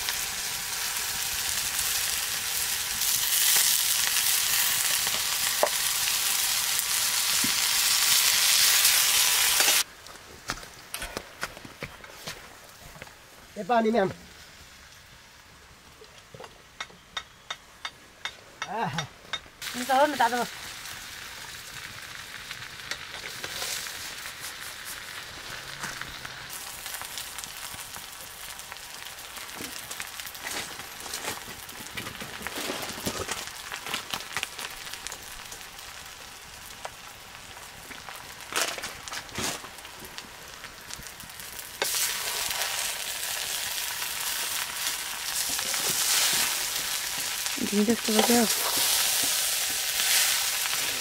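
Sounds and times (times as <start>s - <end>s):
food sizzling in a pan: 0.0s - 9.9s, 19.6s - 51.0s.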